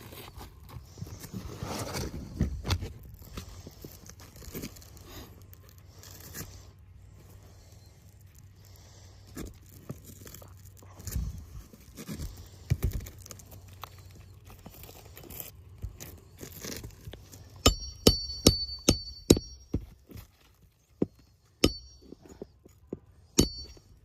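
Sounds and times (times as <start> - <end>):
light rustling and handling: 0.0 - 17.6, 19.6 - 24.0.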